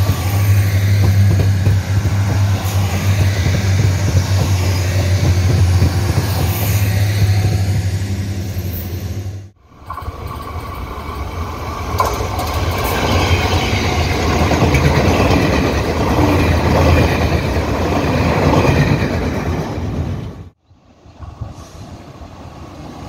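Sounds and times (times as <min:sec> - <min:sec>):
train wheels rushing on rails: 0:00.0 - 0:20.6.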